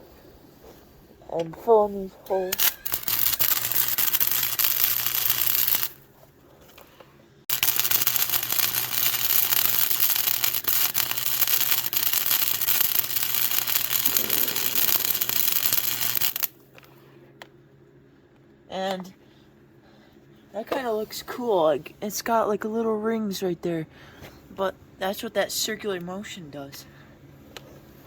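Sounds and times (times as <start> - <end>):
electrical hum: 0.0 - 20.6
welder arc crackling: 2.3 - 6.1, 7.5 - 16.6.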